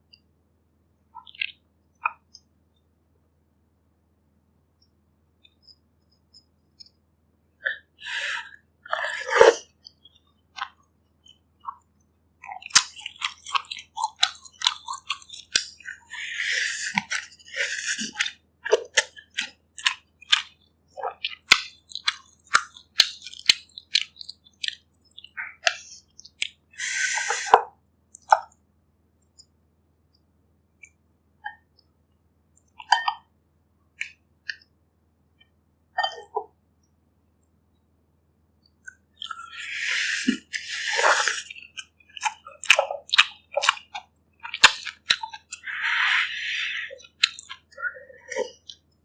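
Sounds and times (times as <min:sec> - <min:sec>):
wet chewing and mouth noises: 0:01.2 - 0:02.5, 0:07.6 - 0:28.6, 0:32.6 - 0:34.8, 0:38.6 - 0:49.0.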